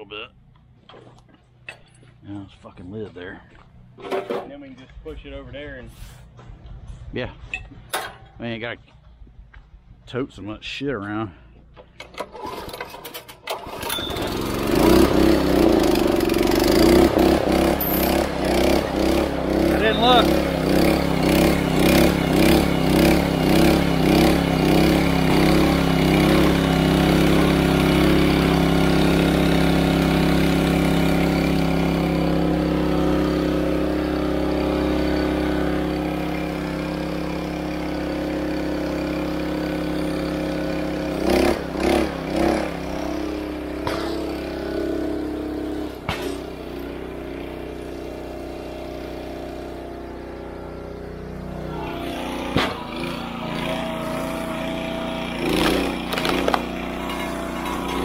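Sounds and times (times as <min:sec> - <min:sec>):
small gasoline engine running: 0:11.8 - 0:58.0
sharp cracks: 0:55.4 - 0:57.4.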